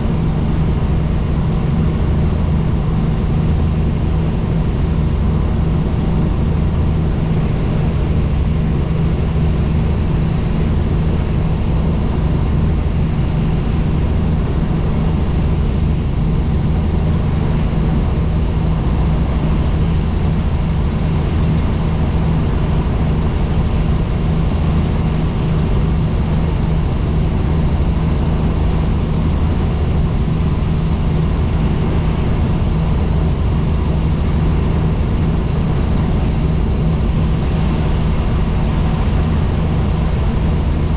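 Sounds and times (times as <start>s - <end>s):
helicopter engine and rotor: 0.0s - 40.9s.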